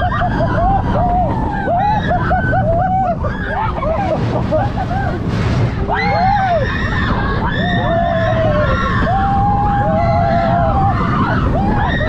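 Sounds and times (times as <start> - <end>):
roller coaster rumbling: 0.0 - 12.0
wind rushing: 0.0 - 12.0
riders screaming: 5.8 - 12.0.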